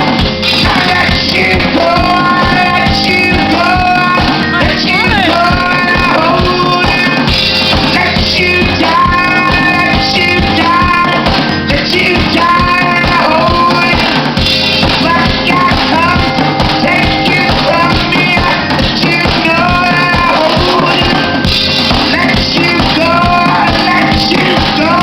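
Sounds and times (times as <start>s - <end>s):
drum kit beat: 0.0s - 25.0s
person singing: 0.0s - 25.0s
rock band playing: 0.0s - 25.0s.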